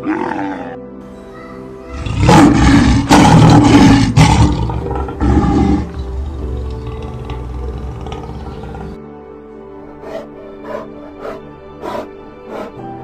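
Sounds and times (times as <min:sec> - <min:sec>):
large animal roaring: 0:00.0 - 0:00.8, 0:01.9 - 0:09.0
background music: 0:00.0 - 0:13.0.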